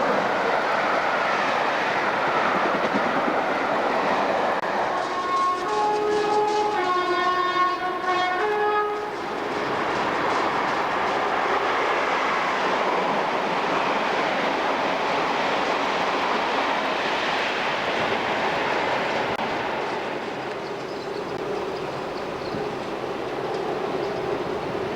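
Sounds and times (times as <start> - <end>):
train running past: 0.0 - 24.9
two-tone locomotive horn: 4.6 - 10.2.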